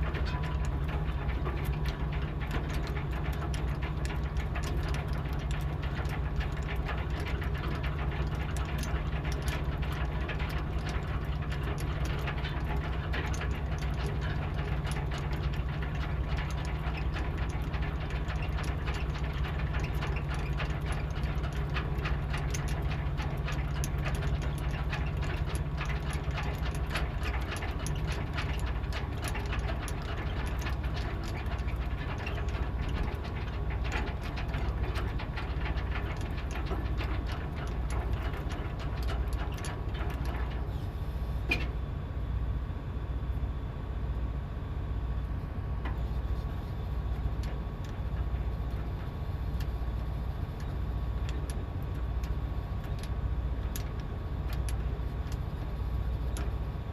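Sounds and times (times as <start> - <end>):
boat engine drone: 0.0 - 43.1.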